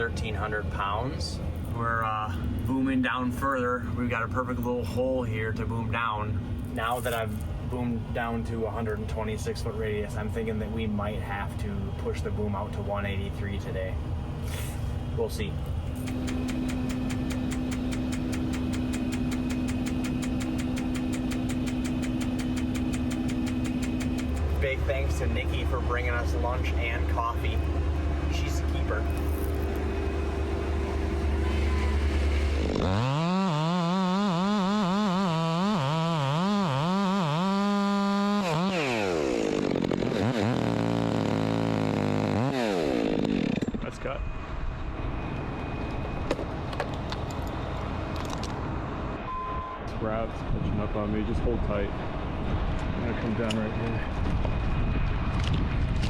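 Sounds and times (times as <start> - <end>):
diesel engine running: 0.0 - 56.0
fast even ticking: 16.0 - 24.8
chainsaw revving and cutting: 16.0 - 26.8, 27.7 - 43.8.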